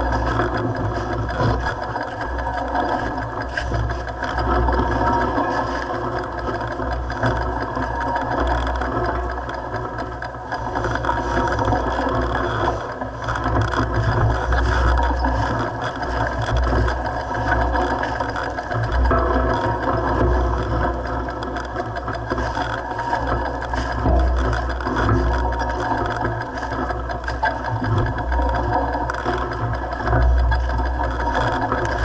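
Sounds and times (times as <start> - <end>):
mountain bike rattling: 0.0 - 32.0.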